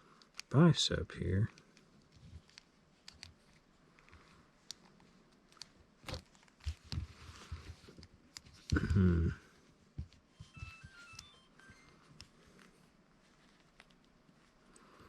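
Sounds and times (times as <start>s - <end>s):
plastic clicks and rubbing: 0.2s - 0.6s, 1.4s - 8.8s, 13.4s - 14.9s.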